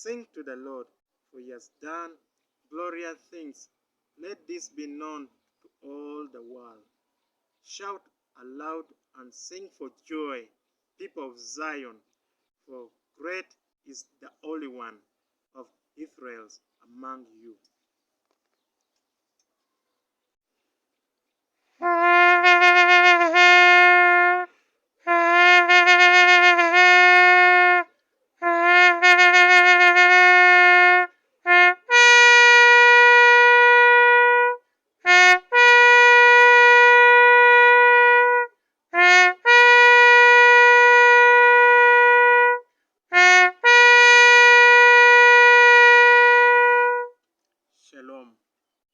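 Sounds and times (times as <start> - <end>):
shofar blasts: 21.8 - 47.2.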